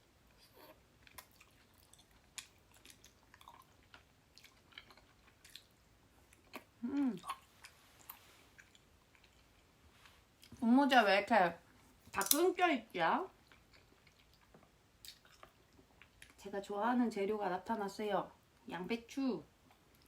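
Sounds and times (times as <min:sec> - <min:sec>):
wet chewing clicks and smacks: 0:01.0 - 0:09.7, 0:13.4 - 0:16.4
person humming: 0:06.8 - 0:07.3.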